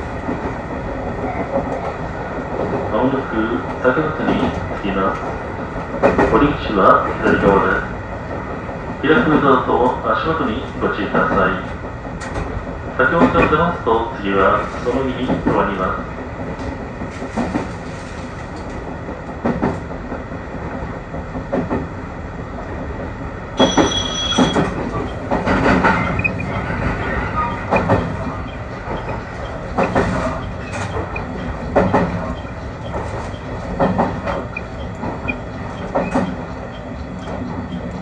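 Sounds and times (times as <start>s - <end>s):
railcar rumbling: 0.0s - 38.0s
wheels clacking over rail joints: 16.4s - 22.0s, 23.6s - 38.0s.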